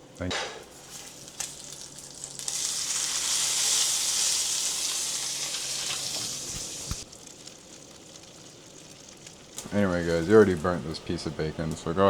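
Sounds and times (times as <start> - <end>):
bacon sizzling: 0.6 - 11.7.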